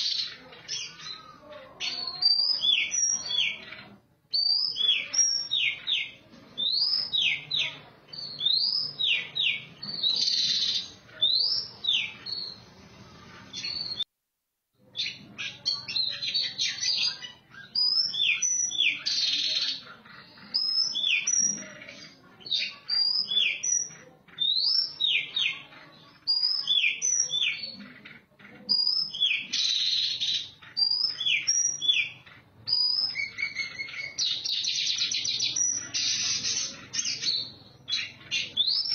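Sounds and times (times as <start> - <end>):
bird singing whistled notes: 8.1 - 12.6, 16.3 - 19.3, 28.7 - 36.4.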